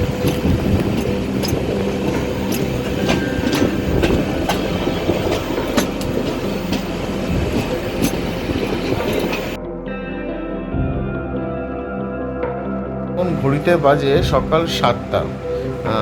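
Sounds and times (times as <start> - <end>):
train rumbling on rails: 0.0 - 9.6, 13.2 - 16.0
wheels clattering over rail joints: 0.0 - 9.6.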